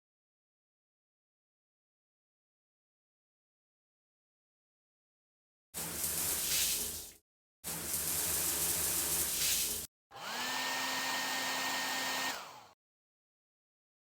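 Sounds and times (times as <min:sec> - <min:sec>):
electric blower rushing air: 0:10.2 - 0:12.8
motor whine: 0:10.2 - 0:12.8.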